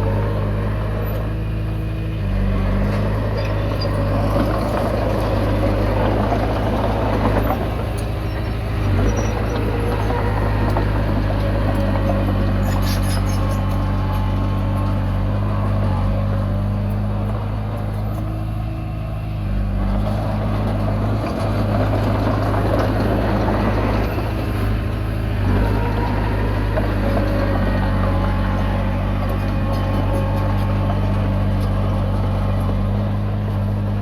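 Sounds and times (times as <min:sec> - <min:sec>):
bulldozer diesel engine: 0:00.0 - 0:34.0.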